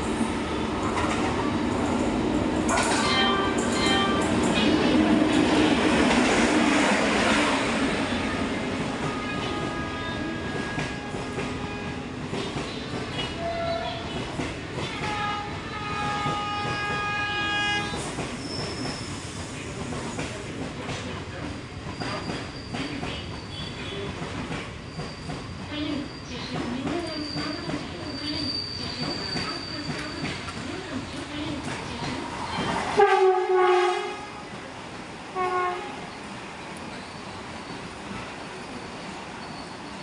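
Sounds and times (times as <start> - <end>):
electric locomotive passing: 0.0 - 20.0
train coaches rumbling and clattering: 0.0 - 40.0.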